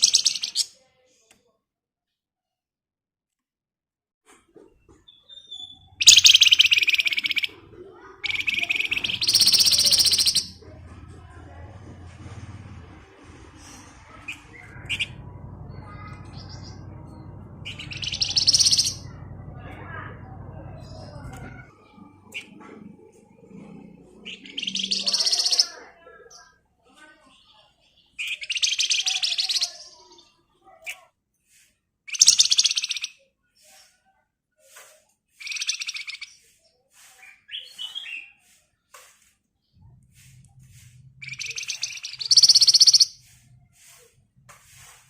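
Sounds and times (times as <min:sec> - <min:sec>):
bird high calls: 0:05.1 - 0:07.5, 0:08.2 - 0:10.6, 0:13.6 - 0:21.7, 0:24.3 - 0:25.8, 0:28.2 - 0:29.9, 0:32.1 - 0:33.2, 0:35.4 - 0:36.4, 0:41.2 - 0:43.4
bird rapid rattling trill: 0:06.0 - 0:07.5, 0:08.2 - 0:10.6, 0:17.6 - 0:19.2, 0:41.2 - 0:43.2
low steady hum: 0:10.6 - 0:24.2.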